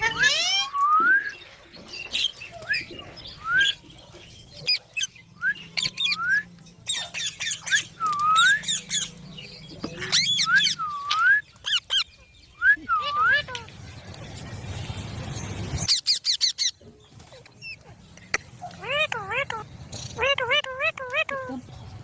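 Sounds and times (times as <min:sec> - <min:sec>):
parrots squawking: 0:00.0 - 0:00.8, 0:02.7 - 0:12.2, 0:12.9 - 0:13.8, 0:15.8 - 0:16.8, 0:17.5 - 0:21.6.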